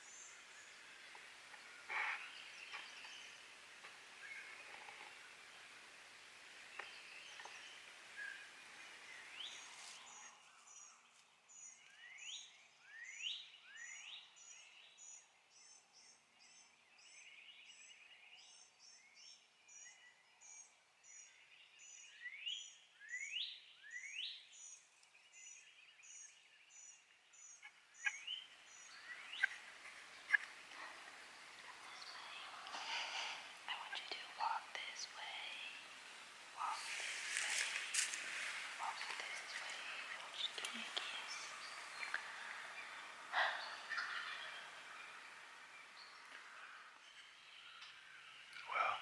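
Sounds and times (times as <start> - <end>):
upward-sweeping bird calls: 28.0 - 49.0.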